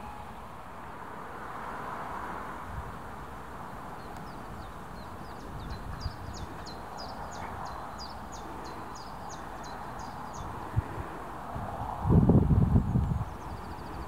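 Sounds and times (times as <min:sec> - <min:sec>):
wind noise: 0:04.2 - 0:14.0.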